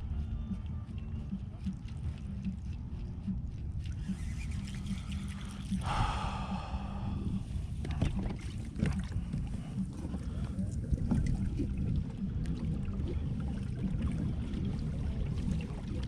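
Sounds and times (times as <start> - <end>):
water lapping: 0.0 - 16.0
wind rumble on microphone: 0.0 - 16.0
knocks and splashes against hull: 7.8 - 16.0.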